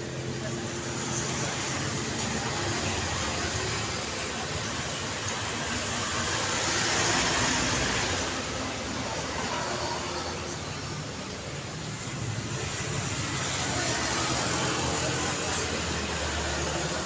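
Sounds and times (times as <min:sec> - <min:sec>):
street traffic noise: 0:00.0 - 0:17.0.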